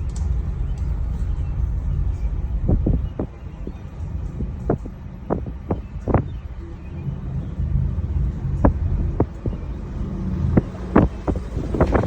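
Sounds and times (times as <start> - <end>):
aerial tram cabin rumble: 0.0 - 12.0.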